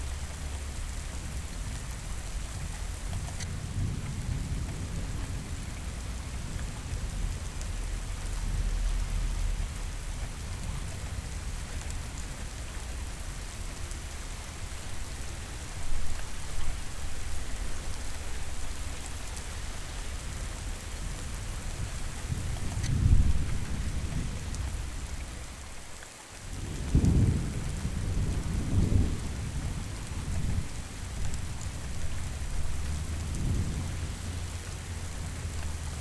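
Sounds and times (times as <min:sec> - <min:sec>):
heavy rain hissing: 0:00.0 - 0:36.0
low thunder rumbling: 0:03.5 - 0:13.8, 0:21.7 - 0:25.6, 0:26.5 - 0:36.0.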